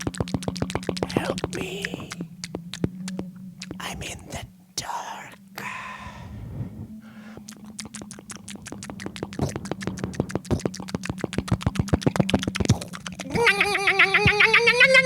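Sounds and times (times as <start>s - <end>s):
rapid electronic clicking: 0.0s - 3.8s, 7.6s - 13.3s
low steady hum: 0.0s - 15.0s.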